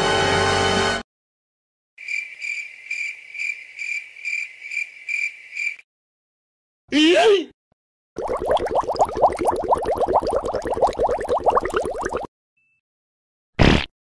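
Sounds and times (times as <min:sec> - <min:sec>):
crickets chirping: 0:02.0 - 0:05.8.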